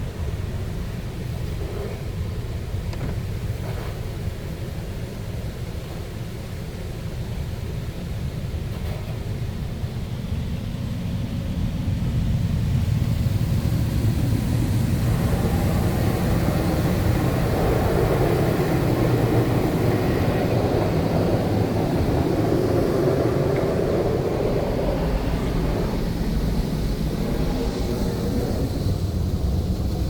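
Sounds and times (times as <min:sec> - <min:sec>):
car wash rushing noise: 0:12.1 - 0:30.0.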